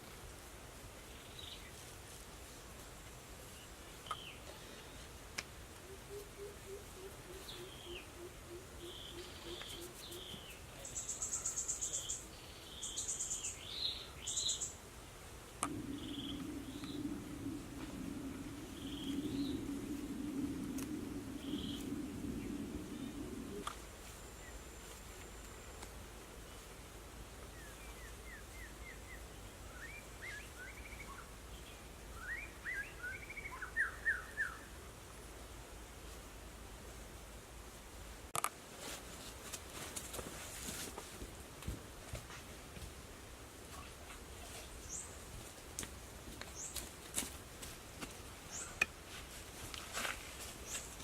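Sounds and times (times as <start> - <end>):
background hiss: 0.0 - 51.0
songbird singing: 3.5 - 5.1, 5.8 - 14.8, 15.6 - 26.7, 27.4 - 34.8
low steady hum: 13.5 - 30.2.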